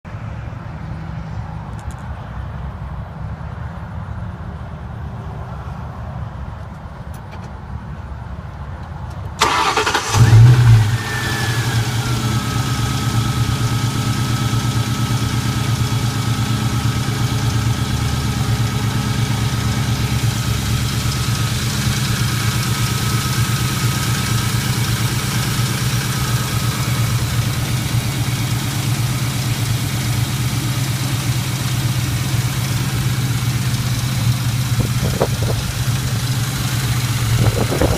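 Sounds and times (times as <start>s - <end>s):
car engine cranking and idling: 9.1s - 37.9s
engine tapping: 14.5s - 37.9s.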